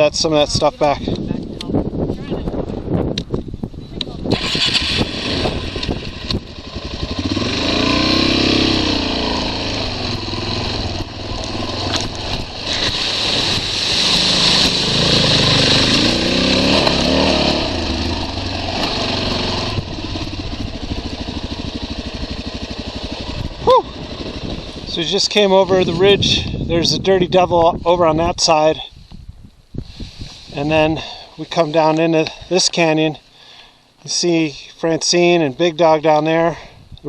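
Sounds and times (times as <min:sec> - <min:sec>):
motorcycle engine revving: 0:04.3 - 0:26.6.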